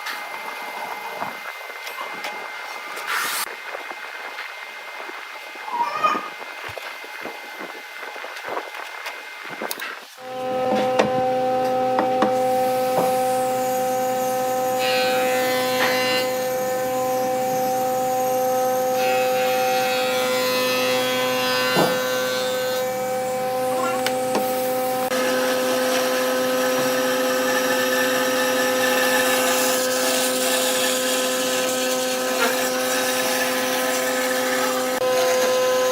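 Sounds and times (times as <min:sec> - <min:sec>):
wood lathe motor hum: 0:10.2 - 0:35.9.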